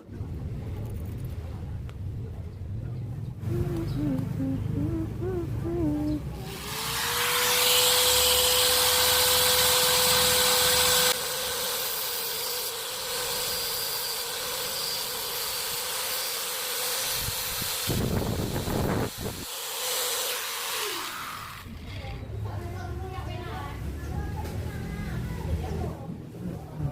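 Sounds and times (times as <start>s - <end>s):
steady tone: 3.4s - 6.4s.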